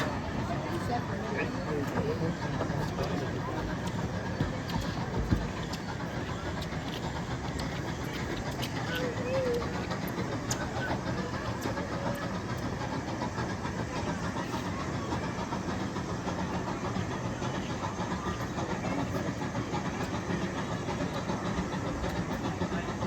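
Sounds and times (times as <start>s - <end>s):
miniature train engine running: 0.0s - 23.0s.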